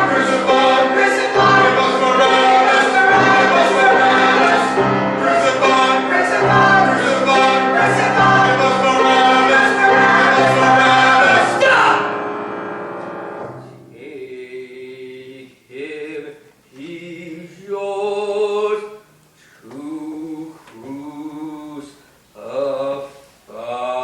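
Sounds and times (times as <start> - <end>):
piano accompaniment: 0.0 - 14.0
choir singing: 0.0 - 18.8.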